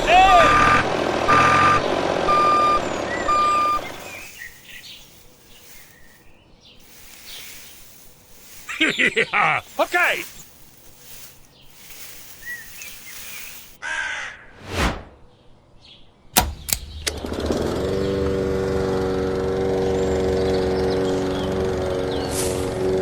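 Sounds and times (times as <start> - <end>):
switch clicks: 16.4 - 17.3.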